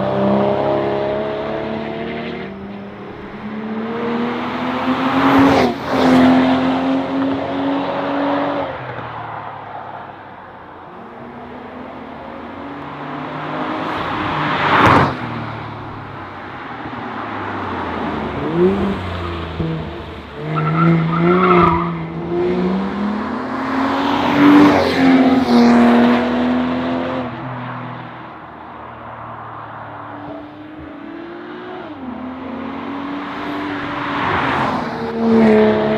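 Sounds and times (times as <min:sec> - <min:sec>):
car engine revving: 0:00.0 - 0:09.2, 0:10.9 - 0:27.5.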